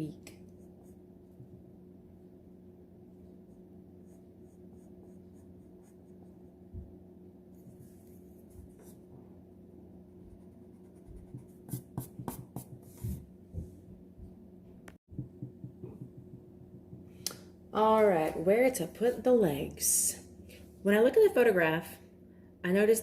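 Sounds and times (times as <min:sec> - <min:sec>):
faint steady hum: 0:00.0 - 0:23.0
pencil scratching on paper: 0:10.3 - 0:13.2.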